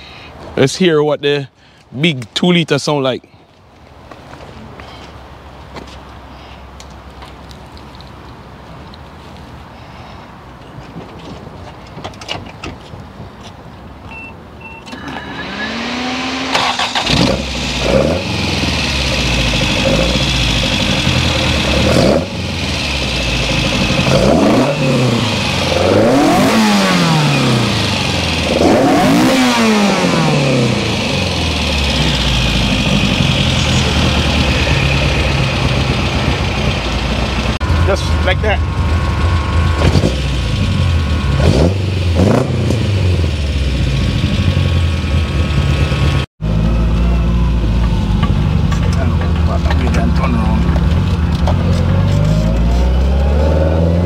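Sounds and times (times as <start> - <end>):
car engine starting and revving: 14.9 - 54.0.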